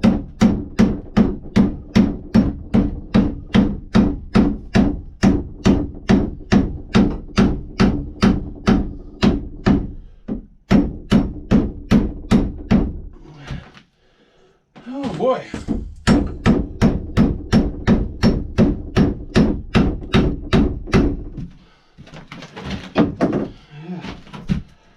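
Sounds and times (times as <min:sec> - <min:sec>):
hammer striking wooden wedge: 0:00.0 - 0:13.0, 0:15.5 - 0:21.5.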